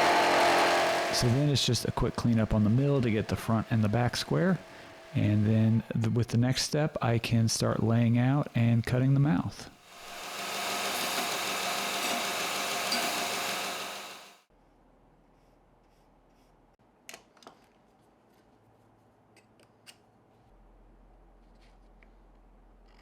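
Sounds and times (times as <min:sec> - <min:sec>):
milling machine running: 0:00.0 - 0:06.4, 0:09.8 - 0:14.4.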